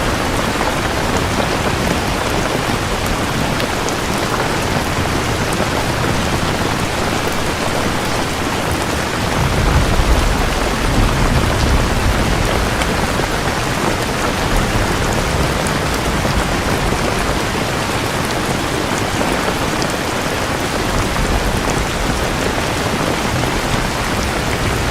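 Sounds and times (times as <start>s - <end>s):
heavy rain: 0.0s - 24.9s
low roll of thunder: 9.1s - 17.8s.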